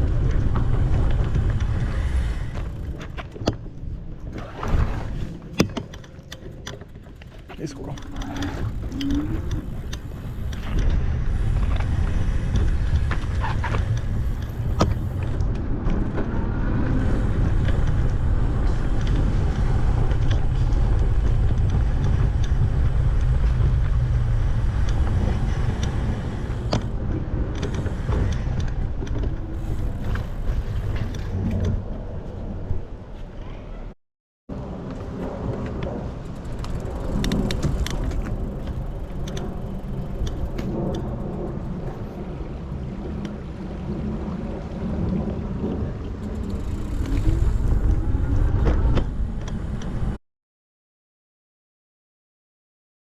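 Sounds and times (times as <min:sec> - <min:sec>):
bicycle tyre rumble on pavement: 0:00.0 - 0:33.6, 0:34.5 - 0:50.2
wind buffeting microphone: 0:00.0 - 0:33.9, 0:34.6 - 0:50.2
sharp clicks and rattles: 0:05.5 - 0:11.0, 0:35.6 - 0:42.0.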